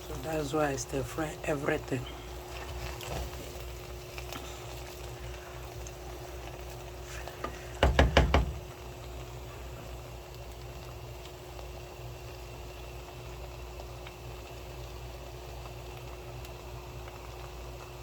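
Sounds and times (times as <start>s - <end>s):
rice sizzling in a pan: 0.0s - 18.0s
utensil knocking on pan: 7.8s - 8.7s.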